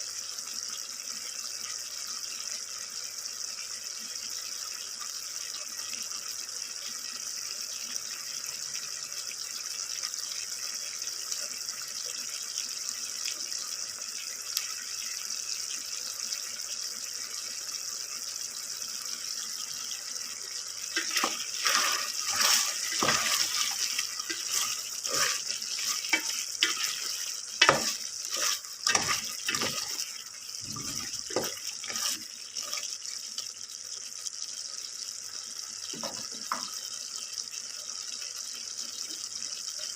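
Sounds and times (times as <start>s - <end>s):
food sizzling in oil: 0.0s - 39.9s
stirring knocks and scrapes in pan: 20.8s - 33.0s, 35.9s - 36.8s.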